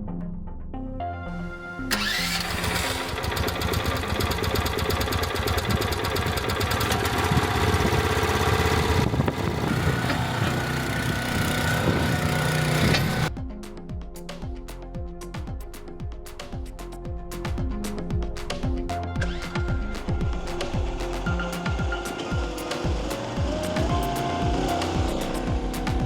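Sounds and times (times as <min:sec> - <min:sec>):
small excavator engine running: 0:01.9 - 0:13.3, 0:21.3 - 0:26.0.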